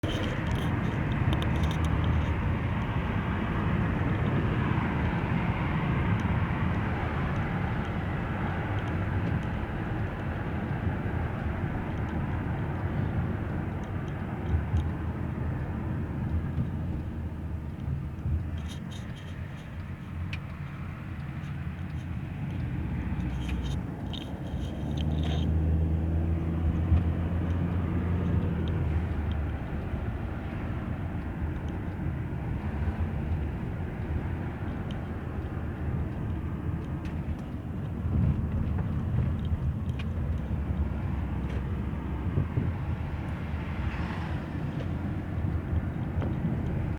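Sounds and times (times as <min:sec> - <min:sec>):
faint ticks: 0:00.0 - 0:02.9, 0:06.1 - 0:42.0
wind and road noise in car: 0:00.0 - 0:46.9.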